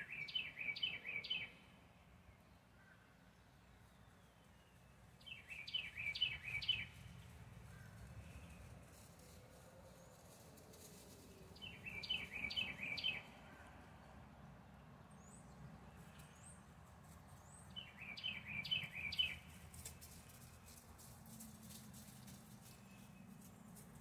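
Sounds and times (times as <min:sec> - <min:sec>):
songbird singing: 0:00.0 - 0:24.0.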